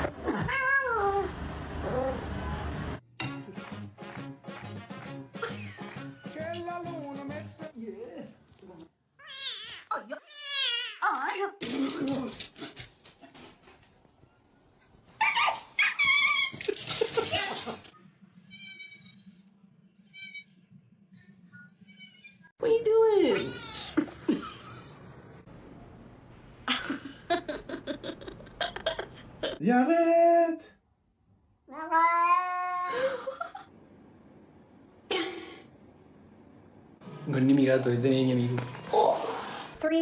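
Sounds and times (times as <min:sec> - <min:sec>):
animal crying loudly: 0:09.2 - 0:11.0
cat meowing: 0:09.2 - 0:11.1.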